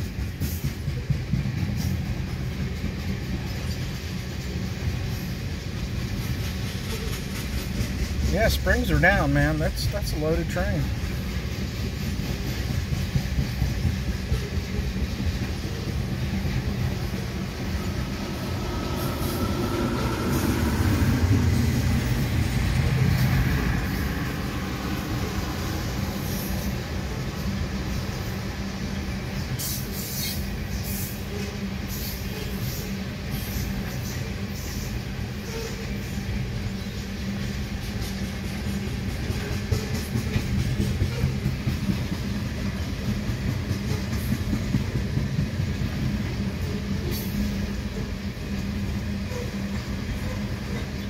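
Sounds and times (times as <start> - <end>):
train wheels rumbling on rail: 0.0 - 51.0.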